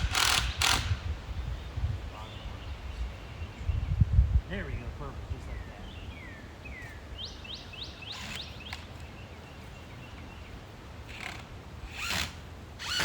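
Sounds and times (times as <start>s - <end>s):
songbird singing whistled notes: 5.5s - 10.6s.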